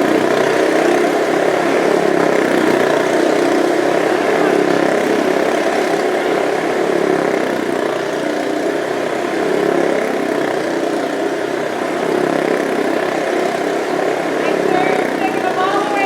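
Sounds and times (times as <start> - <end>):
motorcycle engine running: 12.0 - 16.0.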